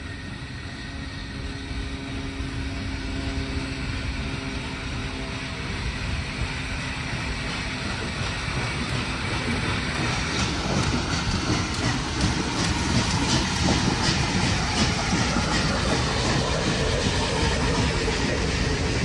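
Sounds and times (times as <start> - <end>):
train rumbling on rails: 0.0 - 19.0
wheels clicking over rails: 6.7 - 19.0.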